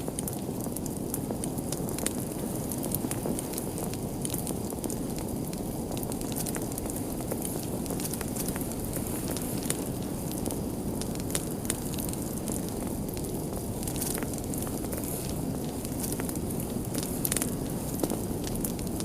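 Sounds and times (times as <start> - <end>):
fire crackling and popping: 0.0 - 19.0
low rush of burning: 0.0 - 19.0.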